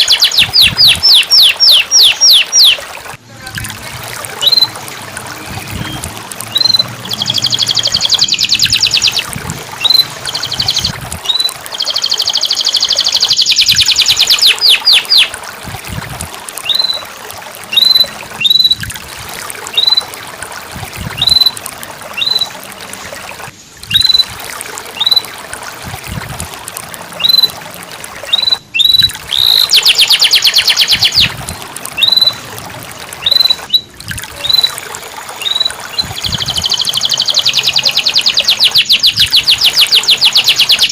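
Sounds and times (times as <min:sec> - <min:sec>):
canary chirping: 0:05.9 - 0:09.2, 0:09.8 - 0:15.3.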